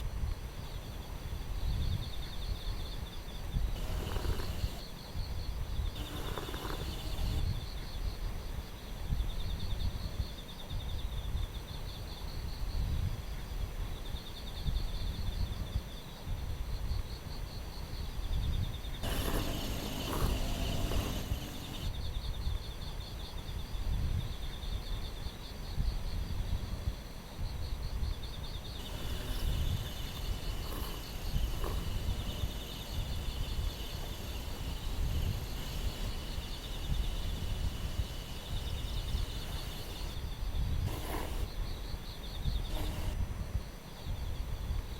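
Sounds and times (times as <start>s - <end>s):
wind gusting over microphone: 0.0s - 11.6s, 17.9s - 22.8s, 25.7s - 44.9s
insects trilling: 0.6s - 11.2s, 16.9s - 26.3s, 27.4s - 43.2s
insect high whine: 3.2s - 7.8s, 18.9s - 22.1s, 28.6s - 43.2s.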